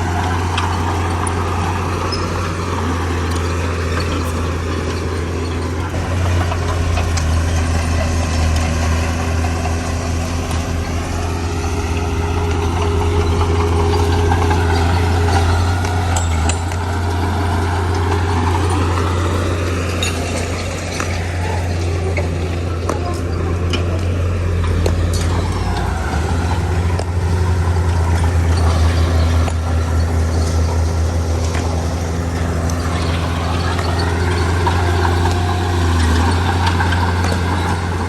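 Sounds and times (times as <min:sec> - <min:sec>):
heavy diesel engine running: 0:00.0 - 0:38.0.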